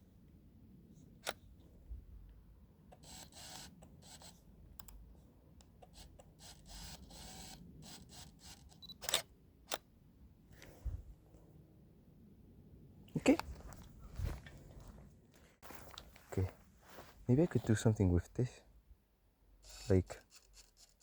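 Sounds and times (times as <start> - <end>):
camera shutter clicking: 3.0 - 4.4, 5.9 - 9.8.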